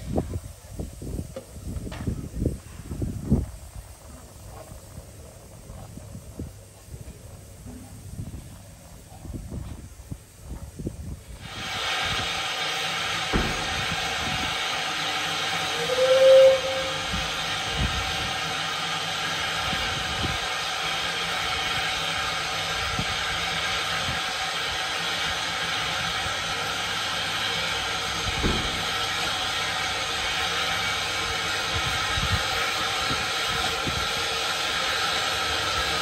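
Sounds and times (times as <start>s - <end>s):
steam train hissing: 0.0s - 36.0s
train whistle toot: 15.4s - 17.6s.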